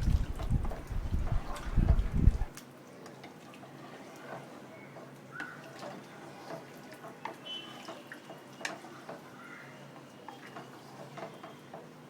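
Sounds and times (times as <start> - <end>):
stock bubbling in a pot: 0.0 - 2.5.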